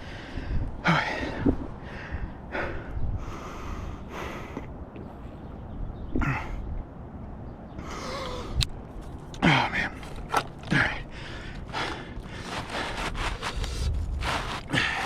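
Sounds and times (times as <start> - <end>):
heavy breaths and gasping exhales: 7.8 - 8.7.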